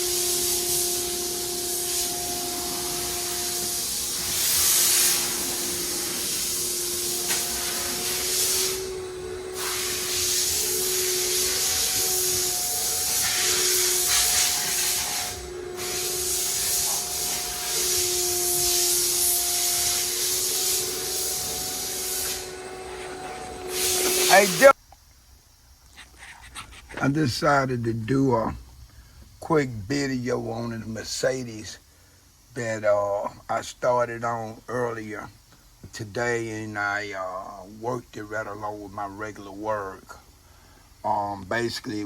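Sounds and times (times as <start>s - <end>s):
high-pressure jet hissing: 0.0s - 24.8s
motor hum: 0.0s - 24.8s.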